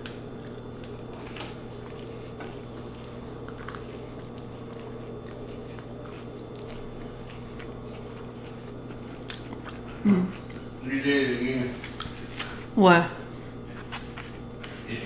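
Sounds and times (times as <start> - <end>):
low electrical hum: 0.0 - 15.0
soft chewing: 0.0 - 15.0
wet mouth clicks: 9.2 - 9.9.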